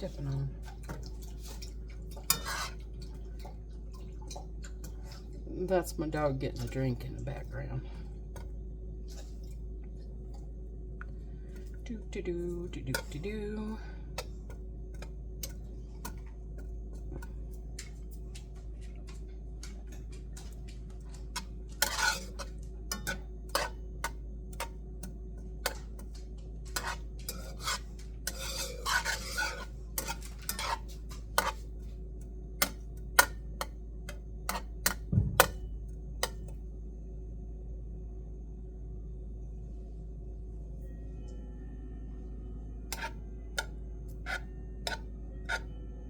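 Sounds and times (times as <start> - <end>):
utensils clinking on pan: 0.0 - 3.1, 21.3 - 24.7, 26.7 - 31.7, 42.9 - 45.7
steady low hum: 0.0 - 46.0.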